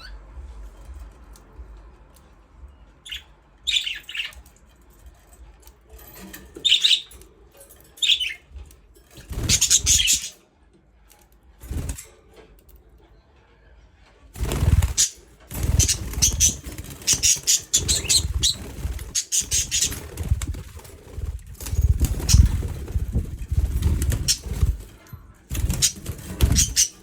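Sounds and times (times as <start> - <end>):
budgerigars chirping: 3.0 - 4.4, 6.6 - 7.1, 9.4 - 10.3, 14.6 - 20.1.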